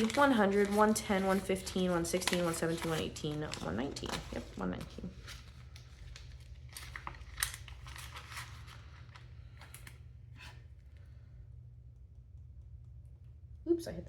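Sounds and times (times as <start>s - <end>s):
paper banknotes rustling: 0.0s - 10.0s
low steady hum: 0.0s - 14.0s.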